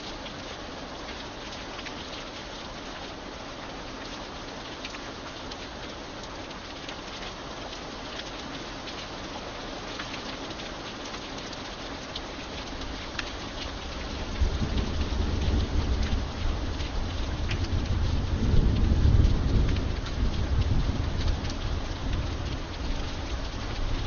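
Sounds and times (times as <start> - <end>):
raindrops tapping: 0.0 - 24.0
steady rain: 0.0 - 24.0
deep rumble of thunder: 14.0 - 24.0.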